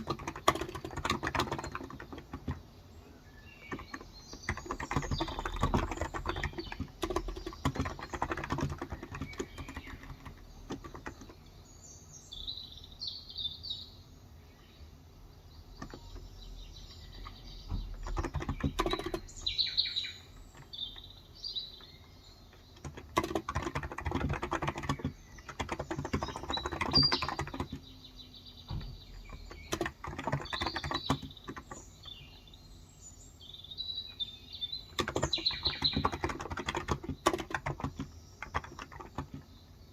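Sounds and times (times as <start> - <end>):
keyboard typing: 0.0 - 2.7, 3.5 - 11.6, 15.8 - 21.1, 22.5 - 27.9, 28.7 - 32.3, 34.9 - 39.6
small birds chirping: 0.0 - 39.9.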